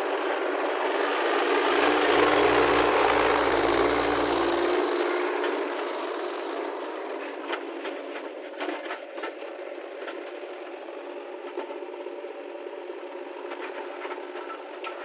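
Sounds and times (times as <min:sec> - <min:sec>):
diesel engine running: 0:00.0 - 0:08.3
light clicks and clanks: 0:13.5 - 0:15.0.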